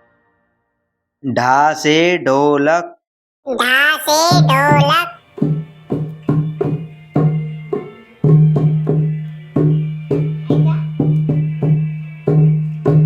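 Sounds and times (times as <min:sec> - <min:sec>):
hand drum played rhythmically: 0:04.3 - 0:05.6.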